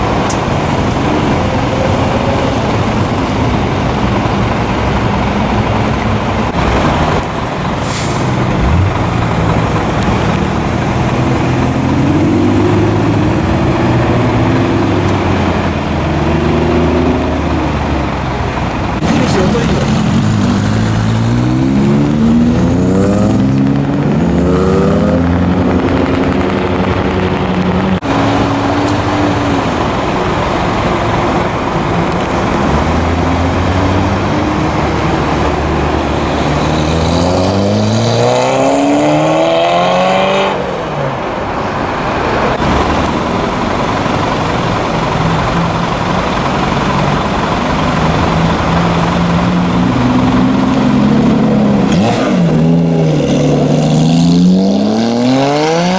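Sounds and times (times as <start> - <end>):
car engines revving and accelerating: 0.0 - 55.9.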